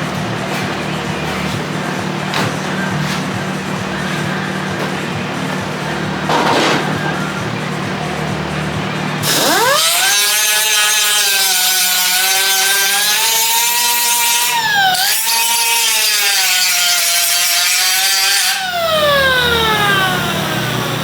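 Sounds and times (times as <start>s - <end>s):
power tool motor whining: 9.2s - 21.0s.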